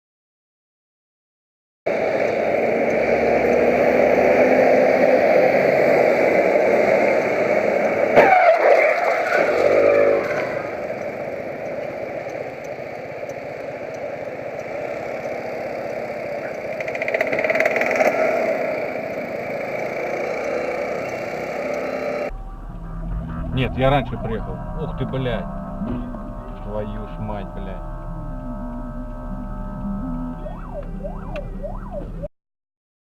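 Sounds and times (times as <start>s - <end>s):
car engine and road noise: 1.9s - 32.3s
brief pitched tone: 22.0s - 32.3s
collision bang: 22.3s - 32.2s.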